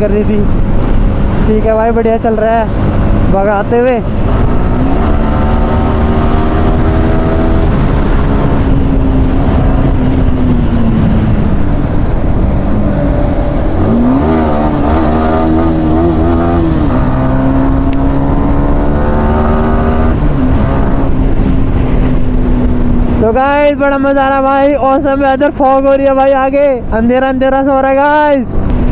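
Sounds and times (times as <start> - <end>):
motorcycle engine accelerating: 0.0 - 24.1.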